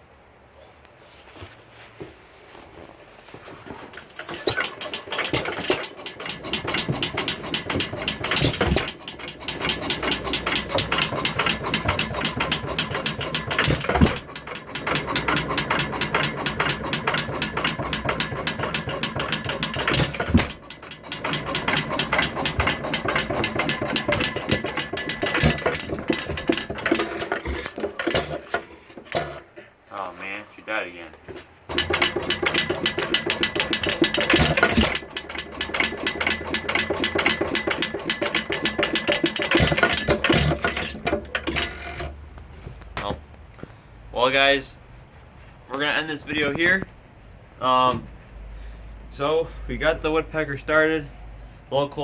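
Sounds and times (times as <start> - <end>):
stationary engine chuffing and clatter: 3.8 - 29.6, 31.7 - 42.2.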